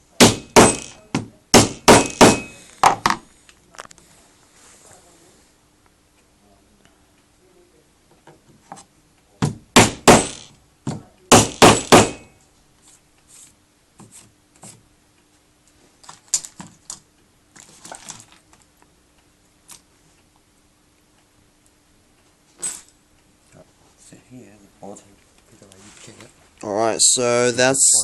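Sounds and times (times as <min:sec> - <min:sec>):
sharp knocks on cabinet parts: 0:00.2 - 0:03.2, 0:09.4 - 0:12.3.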